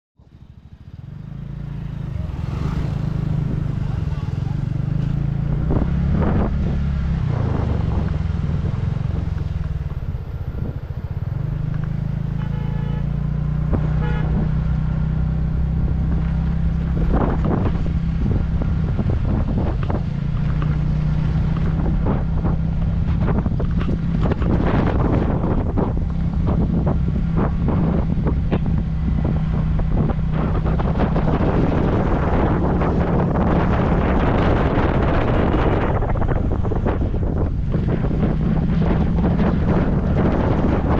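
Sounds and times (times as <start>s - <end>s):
motorcycle engine running: 0.2s - 40.9s
wind rushing over microphone: 0.2s - 40.9s
vehicle horn toots: 12.2s - 14.6s.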